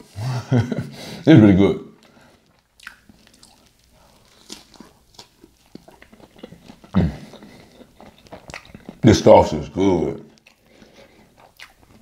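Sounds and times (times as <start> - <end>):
person chewing: 2.0 - 9.4, 10.3 - 12.0
wet mouth clicks: 2.8 - 3.8.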